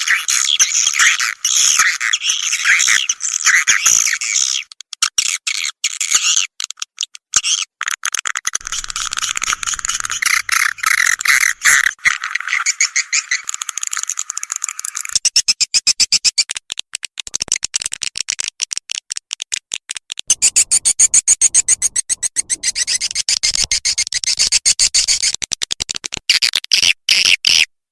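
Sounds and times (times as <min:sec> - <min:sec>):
rapid evenly spaced clicks: 0:08.6 - 0:11.9, 0:13.4 - 0:15.2
fast chirping twitters: 0:08.6 - 0:16.4, 0:20.3 - 0:25.4.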